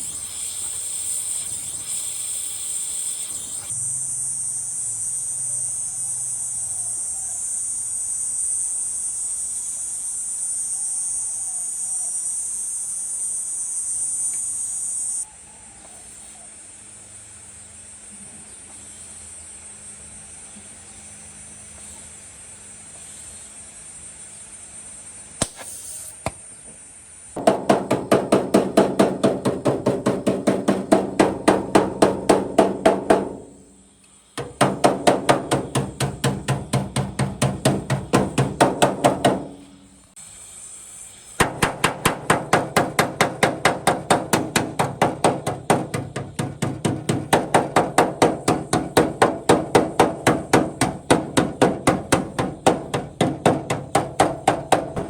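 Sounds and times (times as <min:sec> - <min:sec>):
rapid hammering on metal: 0:27.4 - 0:33.8, 0:34.4 - 0:39.8, 0:41.4 - 0:55.0.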